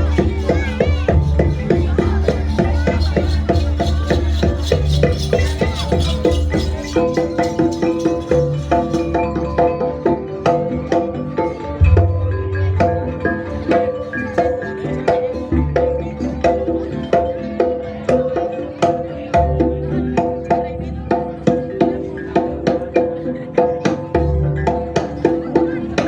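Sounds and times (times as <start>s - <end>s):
metallophone notes: 0.0s - 18.8s
rapid hand-drum strokes: 0.0s - 20.6s.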